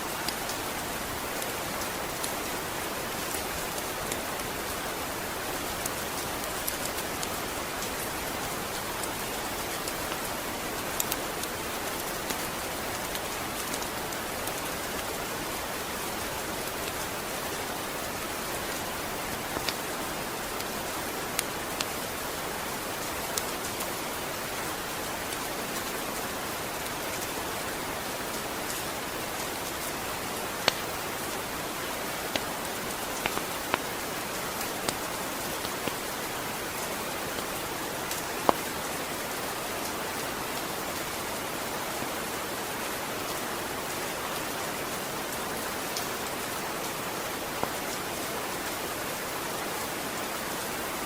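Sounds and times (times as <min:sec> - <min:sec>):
steady rain: 0:00.0 - 0:51.0.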